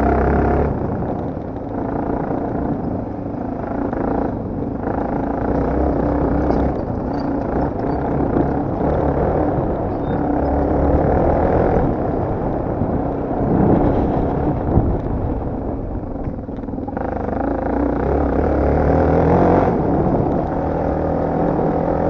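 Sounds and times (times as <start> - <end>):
motocross bike engine: 0.0 - 22.0.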